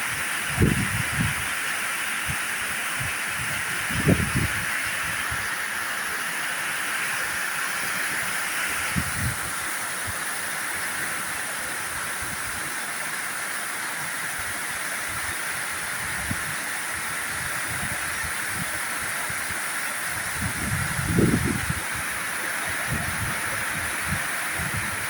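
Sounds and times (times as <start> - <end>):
heavy rain falling: 2.8 - 25.0.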